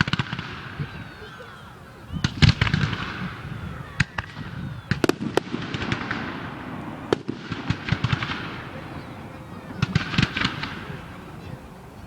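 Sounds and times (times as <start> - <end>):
fireworks crackling: 0.0 - 1.2, 2.1 - 12.0
firework shells bursting: 9.8 - 11.3.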